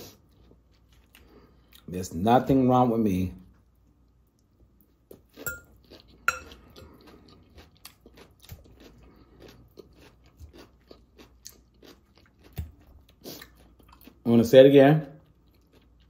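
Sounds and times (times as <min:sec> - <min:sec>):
chewing crunchy salad: 0:00.0 - 0:02.0, 0:03.6 - 0:16.0
metal fork clinking on glass bowl: 0:05.4 - 0:05.7, 0:06.3 - 0:06.5.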